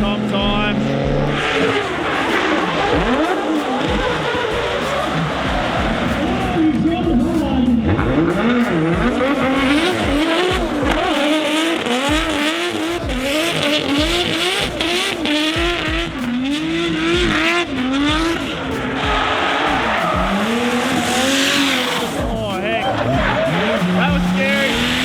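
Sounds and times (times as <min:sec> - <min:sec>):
car engine revving hard: 0:00.0 - 0:25.0
tyres squealing: 0:00.0 - 0:25.0.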